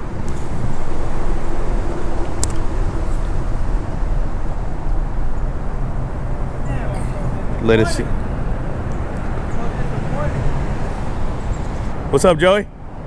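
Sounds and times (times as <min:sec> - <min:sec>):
highway traffic rumble: 0:00.0 - 0:13.0
sharp click: 0:02.4 - 0:02.6.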